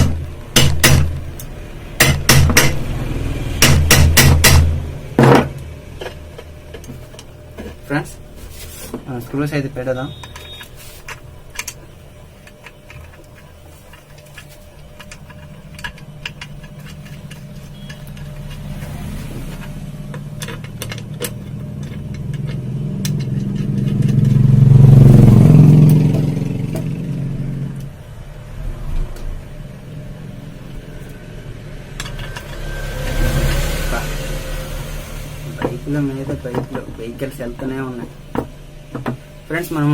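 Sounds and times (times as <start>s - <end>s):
vehicle engine passing by: 2.8s - 3.6s, 18.3s - 20.1s, 22.3s - 27.8s, 28.4s - 36.2s.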